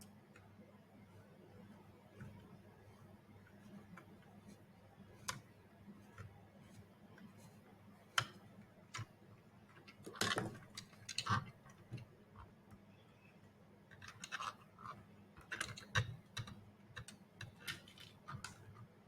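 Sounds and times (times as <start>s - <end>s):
plastic parts clicking and tapping: 5.1s - 7.4s, 8.1s - 12.9s, 13.9s - 19.0s.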